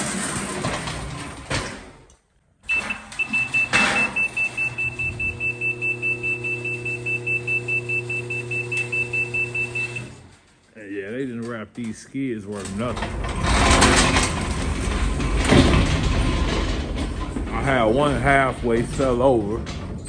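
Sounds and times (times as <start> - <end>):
rapid electronic warning beeps: 2.7 - 10.0.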